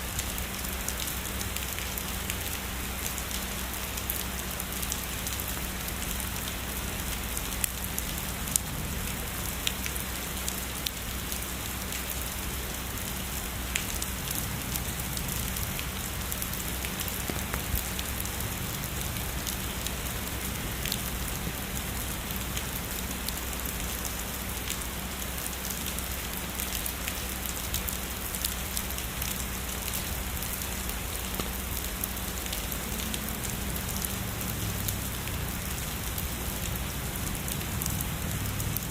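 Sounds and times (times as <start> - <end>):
heavy rain: 0.0 - 38.9
raindrop taps: 16.9 - 18.0, 31.3 - 31.7.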